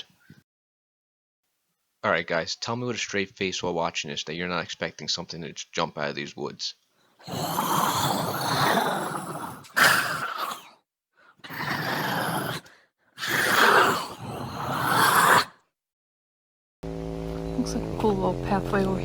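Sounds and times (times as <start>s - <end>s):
breathy creature groans: 7.2s - 10.7s, 11.4s - 15.4s.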